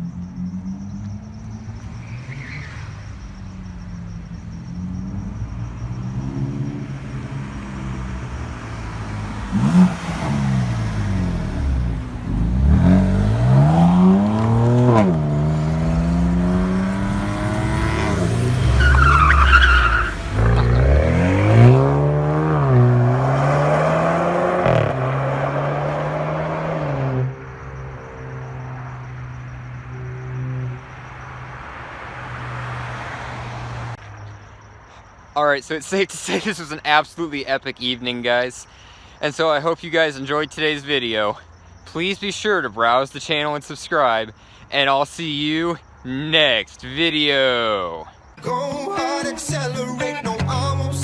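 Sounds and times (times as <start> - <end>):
tyre squeal: 1.9 - 3.2, 14.9 - 21.8
car engine revving: 4.8 - 27.3, 48.4 - 51.0.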